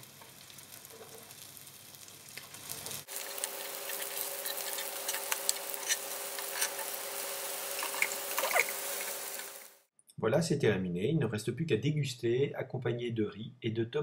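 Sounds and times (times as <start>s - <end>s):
fish frying in oil: 0.0s - 9.9s.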